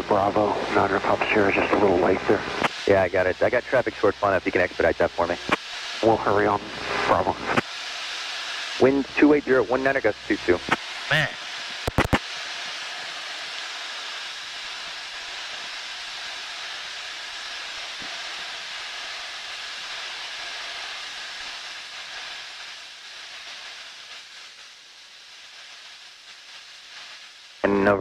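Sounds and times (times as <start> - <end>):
cockpit noise hiss: 0.0 - 28.0.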